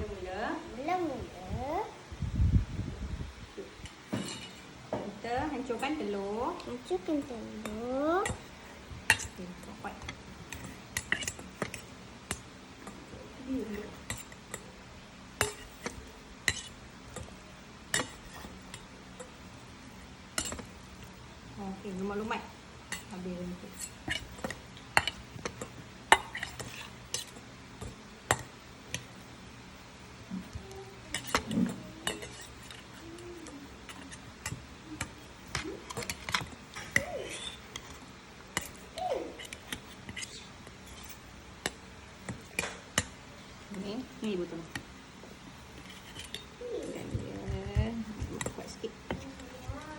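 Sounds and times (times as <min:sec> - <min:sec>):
metal utensil scraping a bowl: 0:04.2 - 0:04.7, 0:05.7 - 0:12.4, 0:15.4 - 0:19.4, 0:22.9 - 0:28.0, 0:31.1 - 0:43.1, 0:45.6 - 0:46.6
metal utensil clinking on bowl: 0:31.1 - 0:32.8.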